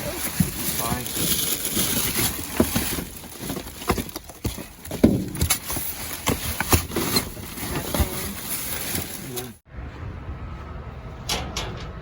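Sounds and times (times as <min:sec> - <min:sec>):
items knocking in a dumpster: 0:00.0 - 0:09.4.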